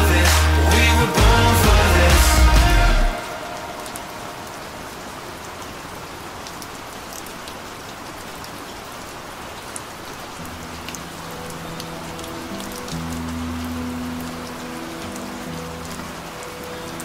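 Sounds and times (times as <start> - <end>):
music with low held notes: 0.0 - 3.2
rain falling on a surface: 3.0 - 17.0
raindrop ticks: 6.2 - 17.0.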